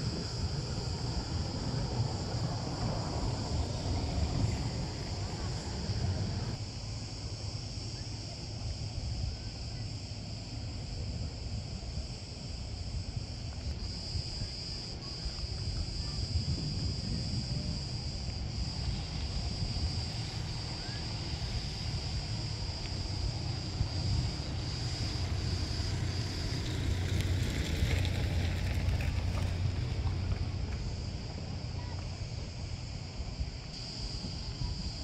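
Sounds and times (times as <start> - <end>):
low rumble: 0.0 - 6.6
insects buzzing: 0.0 - 35.0.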